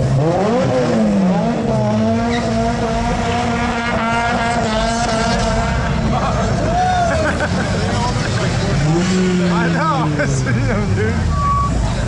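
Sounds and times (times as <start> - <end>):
car engine revving hard: 0.0 - 12.0
tyre squeal: 2.2 - 2.6.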